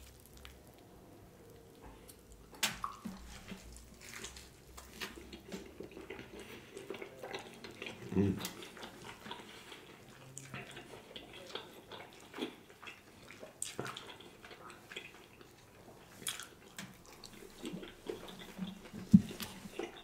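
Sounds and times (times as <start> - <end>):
wet chewing and lip smacks: 0.0 - 20.0.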